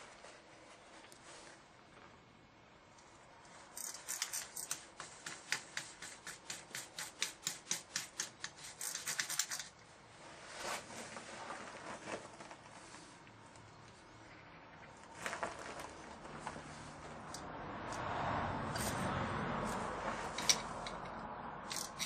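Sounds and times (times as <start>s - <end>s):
bicycle freewheel ratchet clicking: 18.8s - 19.0s, 21.7s - 22.0s.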